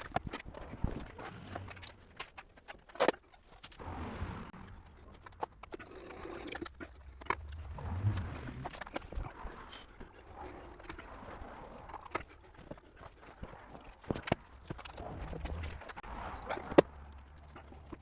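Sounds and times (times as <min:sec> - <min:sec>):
low rumble: 0:03.8 - 0:12.1, 0:14.4 - 0:18.0.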